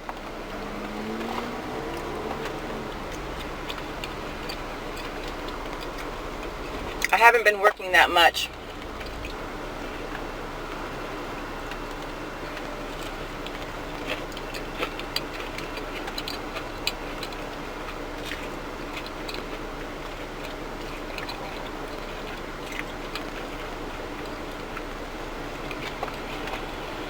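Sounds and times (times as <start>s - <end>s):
steady background noise: 0.0s - 27.0s
mouth clicks while eating: 11.7s - 26.7s.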